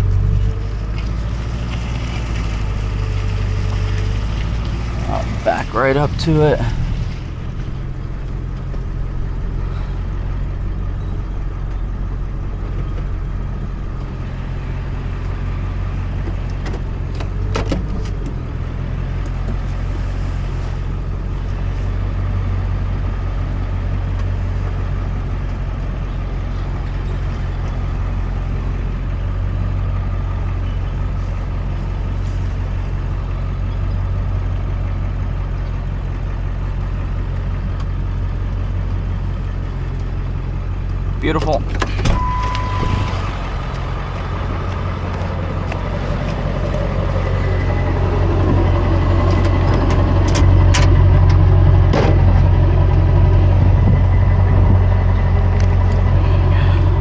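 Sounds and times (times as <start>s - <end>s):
truck engine running: 0.0s - 57.0s
brief high squeak: 42.2s - 43.4s.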